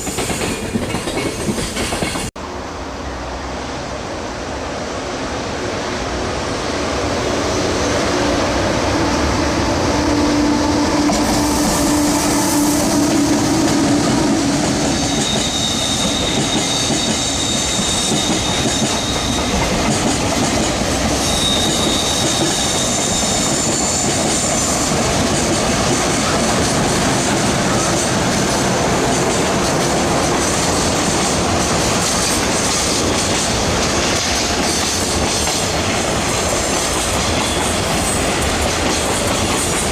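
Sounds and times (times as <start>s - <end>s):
freight train wheels clattering: 0.0s - 2.4s, 10.9s - 39.9s
high wheel squeal: 9.8s - 19.7s, 21.2s - 24.9s.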